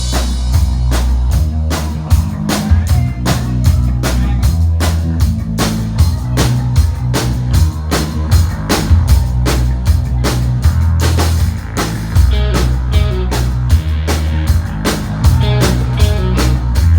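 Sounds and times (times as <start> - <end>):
drum kit beat: 0.0 - 16.9
heavy bass line: 0.0 - 16.9
rock music: 0.0 - 16.9.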